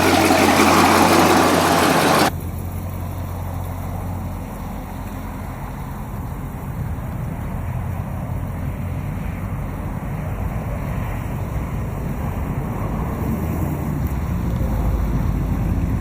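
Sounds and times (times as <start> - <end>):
vehicle engine low rumble: 0.0 - 2.7.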